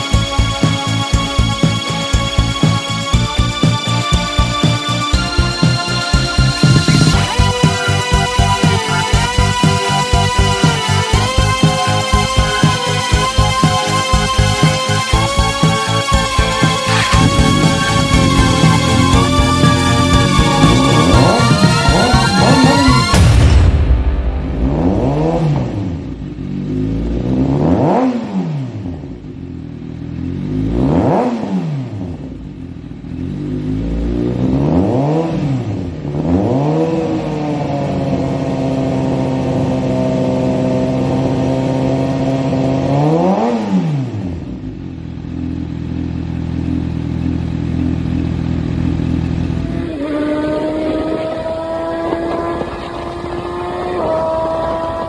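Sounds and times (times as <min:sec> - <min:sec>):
motorcycle engine idling: 0:00.0 - 0:23.6, 0:44.6 - 0:55.0
motorcycle engine revving: 0:00.0 - 0:55.0.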